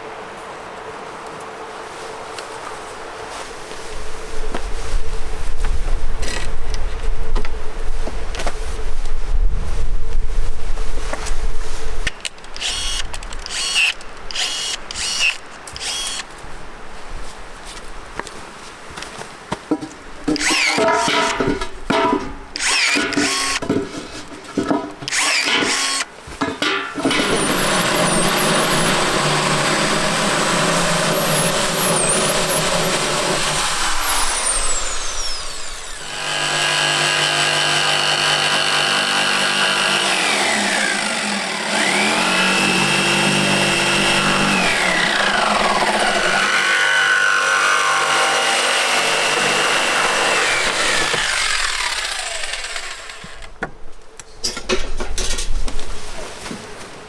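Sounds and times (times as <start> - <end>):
electric power tool running: 12.6 - 16.3, 20.3 - 21.6, 22.6 - 23.8, 25.0 - 26.1, 26.9 - 53.5
scraping or knocking strokes: 19.7 - 33.6.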